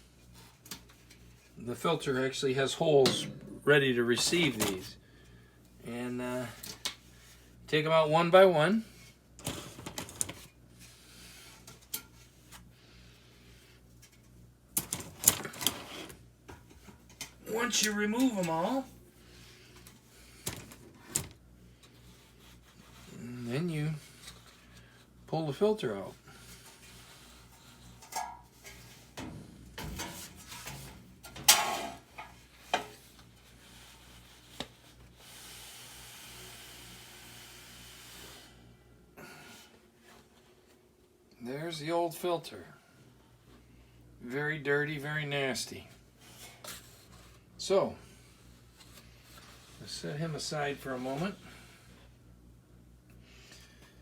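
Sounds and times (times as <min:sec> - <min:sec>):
scraping and rustling of paper: 0:17.6 - 0:25.0, 0:26.2 - 0:29.2.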